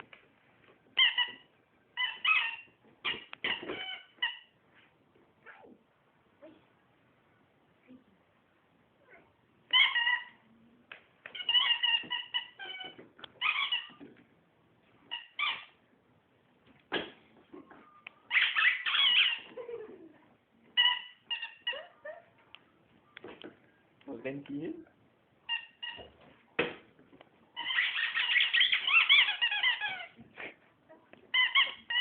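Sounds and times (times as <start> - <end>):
squeaky toy squeaks: 1.0 - 4.6, 9.7 - 10.4, 11.3 - 14.1, 15.1 - 15.8, 18.3 - 19.7, 20.7 - 22.2, 25.4 - 26.2, 27.6 - 30.2, 31.3 - 32.0.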